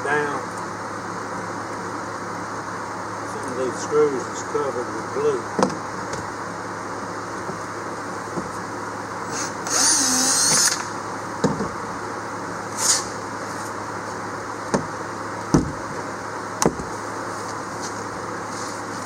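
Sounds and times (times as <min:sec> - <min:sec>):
cordless drill running: 0:09.3 - 0:11.0.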